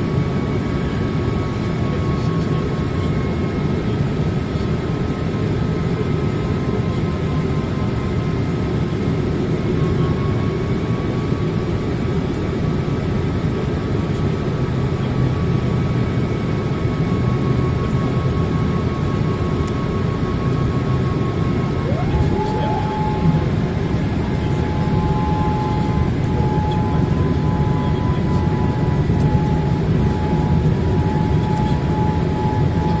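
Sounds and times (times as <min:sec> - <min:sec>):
aircraft cabin engine roar: 0:00.0 - 0:33.0
faint steady whine: 0:18.5 - 0:33.0.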